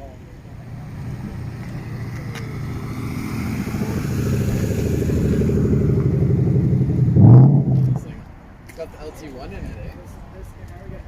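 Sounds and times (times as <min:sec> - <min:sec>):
engine rumbling: 0:00.0 - 0:08.5.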